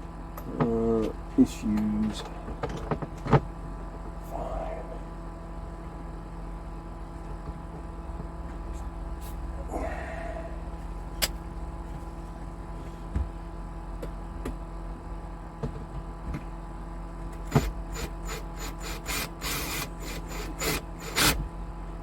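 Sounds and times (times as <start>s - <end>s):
low hum: 3.6s - 7.3s, 8.0s - 13.4s.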